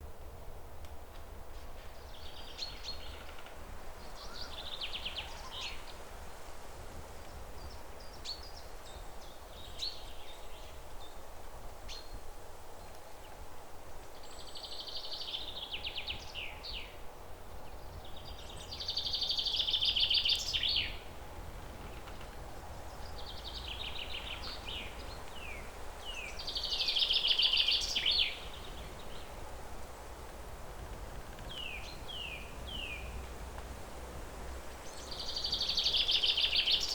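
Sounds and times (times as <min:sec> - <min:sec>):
low outdoor rumble: 0:16.4 - 0:35.9
songbird trilling: 0:23.0 - 0:28.6.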